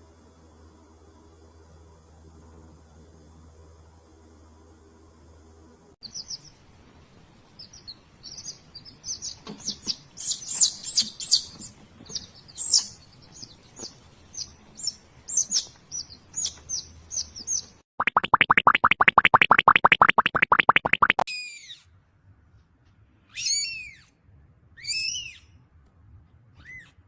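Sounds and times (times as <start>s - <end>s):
faint low hum: 0.0s - 17.8s
small birds chirping: 6.0s - 17.8s, 24.8s - 25.5s, 26.6s - 27.0s.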